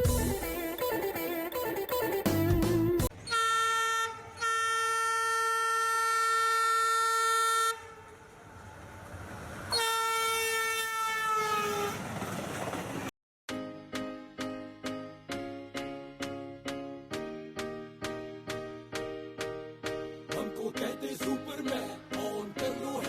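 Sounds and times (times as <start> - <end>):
train horn blasts: 3.2 - 8.3, 9.7 - 12.0
train rumble: 8.0 - 9.8, 11.4 - 13.1.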